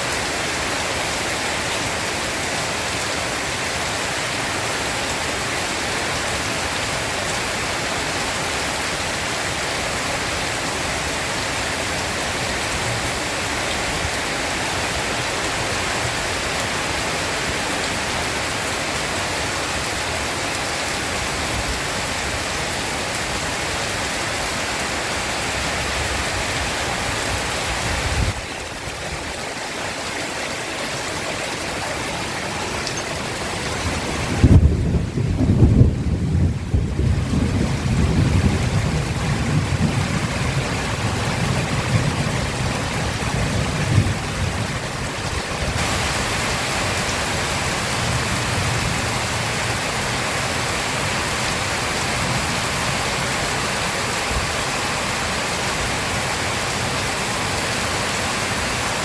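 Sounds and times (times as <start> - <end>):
heavy rain pouring: 0.0 - 59.0
low rumble of thunder: 33.8 - 46.2.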